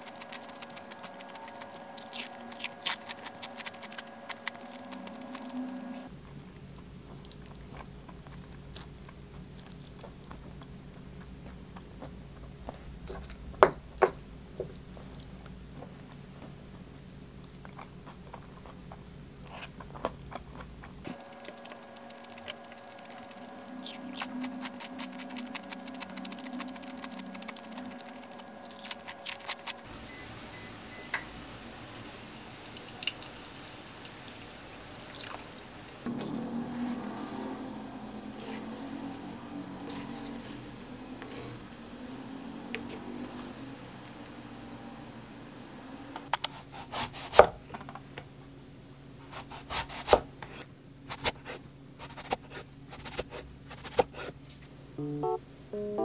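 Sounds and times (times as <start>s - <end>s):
chewing and crunching food: 0.0s - 29.9s, 32.6s - 36.1s.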